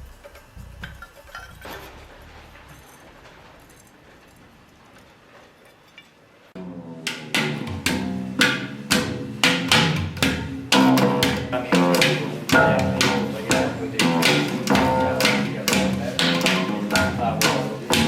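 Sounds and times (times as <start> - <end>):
low bass line: 6.6 - 18.0
plucked pitched notes: 6.6 - 18.0.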